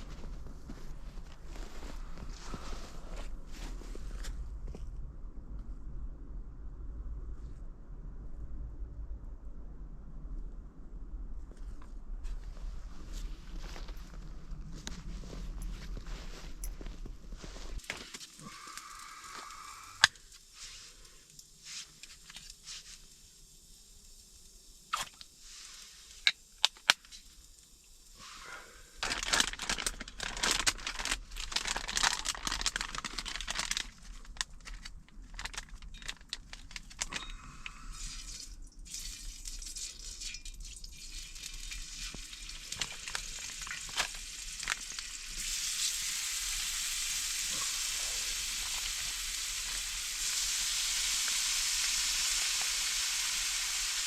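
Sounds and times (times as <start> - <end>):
crinkling and rustling: 0.0 - 5.0, 11.5 - 23.2, 24.9 - 27.4, 29.0 - 37.6, 39.4 - 45.5, 47.5 - 50.5
food sizzling in a pan: 44.2 - 54.0.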